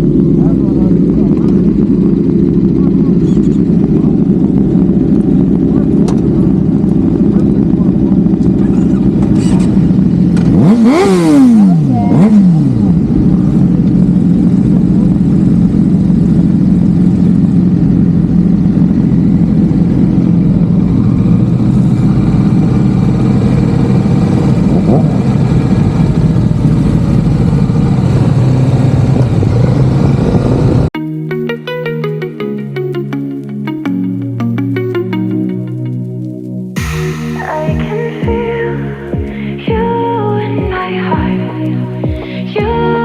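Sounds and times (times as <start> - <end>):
motorcycle engine running: 0.0 - 30.9, 32.7 - 43.0
music: 31.0 - 43.0.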